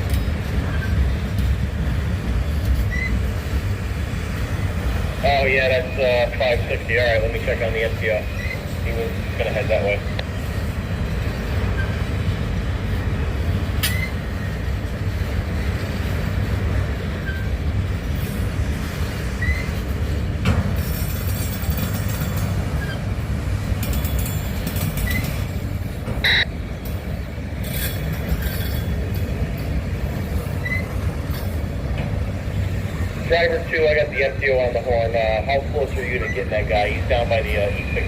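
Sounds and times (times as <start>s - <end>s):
train wheel squeals: 0.0s - 1.6s, 2.4s - 3.6s, 7.0s - 10.6s, 11.2s - 12.3s, 13.8s - 14.7s, 17.0s - 23.2s, 23.8s - 26.5s, 27.6s - 31.6s, 36.0s - 36.6s
wheels clicking over rail joints: 0.0s - 5.2s, 6.8s - 33.2s
train cars rumbling: 0.0s - 38.0s.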